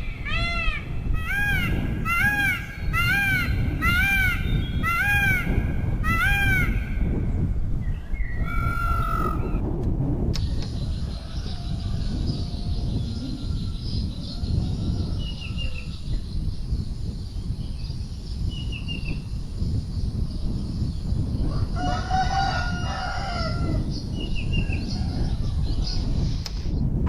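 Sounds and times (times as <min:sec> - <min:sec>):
steady low rumble: 0:00.0 - 0:27.0
rooster crowing: 0:21.5 - 0:23.8.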